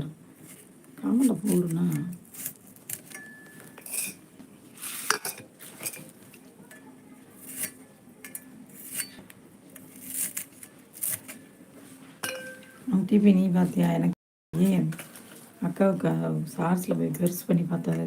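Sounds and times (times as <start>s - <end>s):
utensils and dishes clattering: 3.0s - 4.3s, 5.0s - 9.2s, 12.2s - 12.8s.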